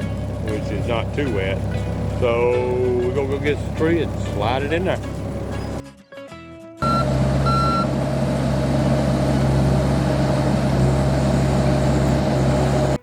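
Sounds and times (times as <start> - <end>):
excavator engine running: 0.0 - 5.8, 6.8 - 13.0
high alarm beeps: 6.8 - 7.9.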